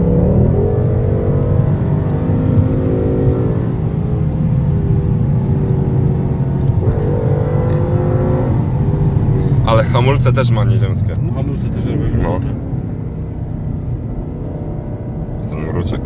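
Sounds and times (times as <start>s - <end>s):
car engine deep loud rumble: 0.0s - 16.0s.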